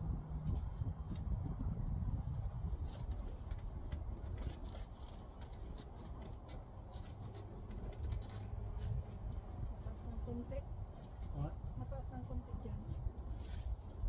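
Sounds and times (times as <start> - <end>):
steady low rumble: 0.0 - 5.8.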